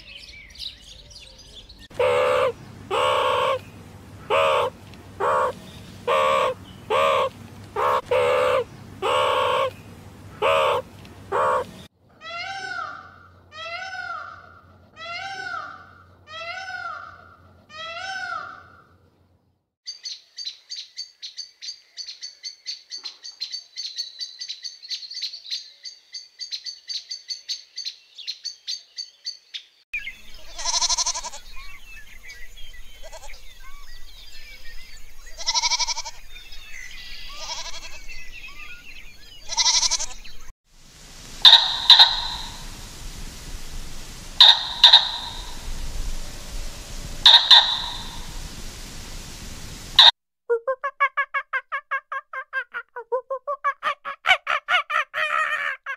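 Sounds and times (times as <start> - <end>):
faint twittering birds: 0.0 - 11.9, 18.2 - 50.1
peacock calling: 0.0 - 18.9, 30.0 - 50.1
goats bleating: 30.5 - 31.5, 39.5 - 40.2
hummingbird chirping: 41.1 - 50.1.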